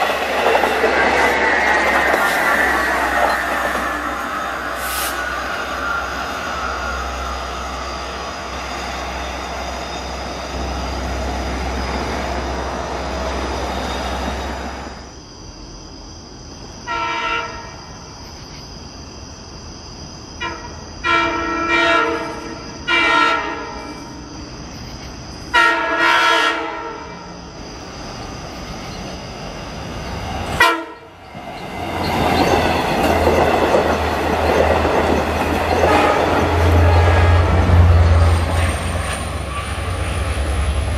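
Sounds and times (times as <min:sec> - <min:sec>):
train rumbling: 0:00.0 - 0:40.9
diesel train horn: 0:16.8 - 0:17.8, 0:20.4 - 0:24.1, 0:25.5 - 0:27.3, 0:30.6 - 0:31.2, 0:35.7 - 0:40.9.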